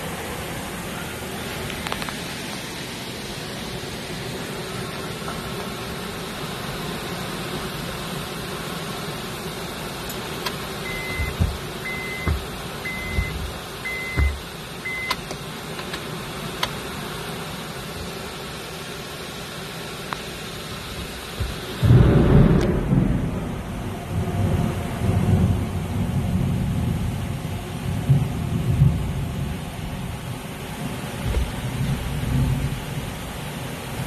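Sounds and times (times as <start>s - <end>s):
heavy rain on car roof: 0.0s - 34.0s
short electronic beeps: 10.9s - 15.2s
dull thumps: 11.0s - 14.4s
thunder clap: 21.4s - 25.7s.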